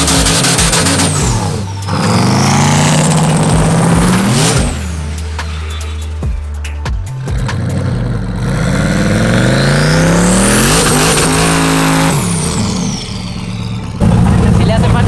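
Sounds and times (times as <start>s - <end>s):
pickup engine revving: 0.0s - 15.0s
turbo whine: 0.0s - 15.0s.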